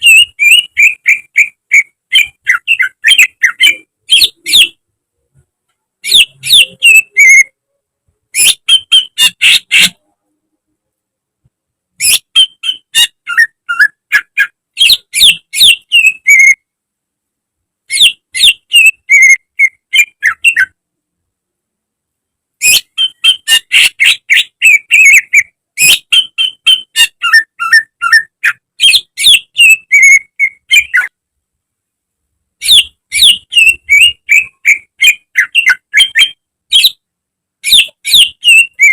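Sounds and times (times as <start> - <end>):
bird singing whistled chattering notes: 0.0 - 4.8, 6.0 - 7.5, 8.4 - 10.0, 12.0 - 16.6, 17.9 - 20.8, 22.6 - 31.1, 32.6 - 37.0, 37.6 - 38.9.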